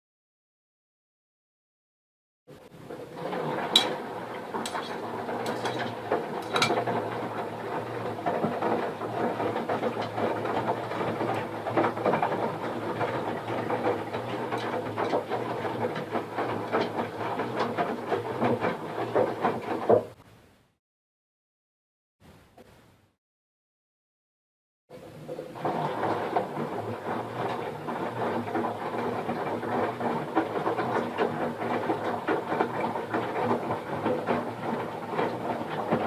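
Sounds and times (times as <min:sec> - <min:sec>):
washing machine humming: 0:02.5 - 0:20.2, 0:24.9 - 0:36.0
washing machine clicks and knocks: 0:03.4 - 0:07.6.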